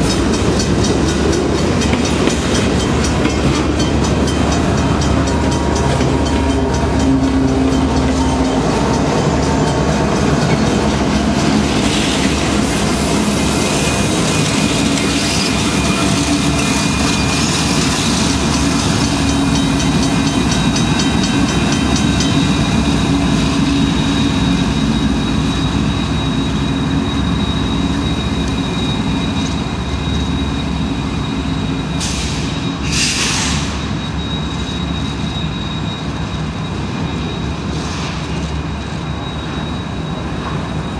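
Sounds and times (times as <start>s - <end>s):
wheels clicking over rail joints: 0.0s - 25.4s
freight train rumble: 0.0s - 40.9s
high wheel squeal: 0.0s - 40.9s.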